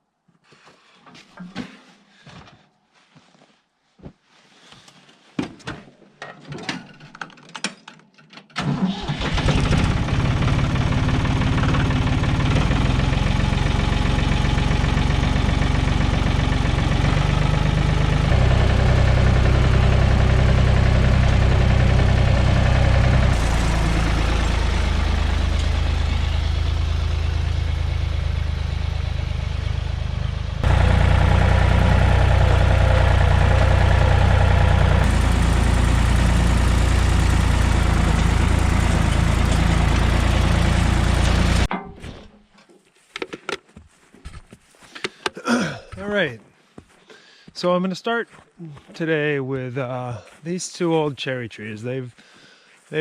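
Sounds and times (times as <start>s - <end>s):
tractor engine starting and running: 8.6s - 42.3s.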